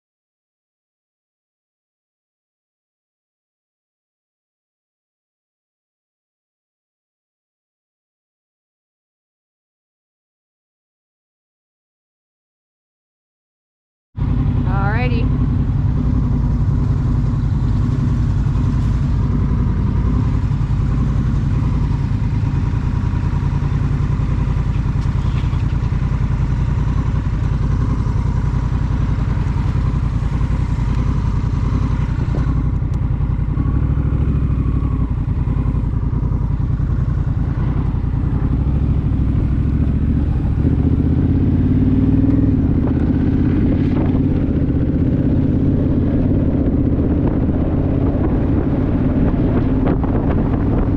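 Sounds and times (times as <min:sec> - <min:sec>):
motorcycle engine running: 0:14.2 - 0:50.9.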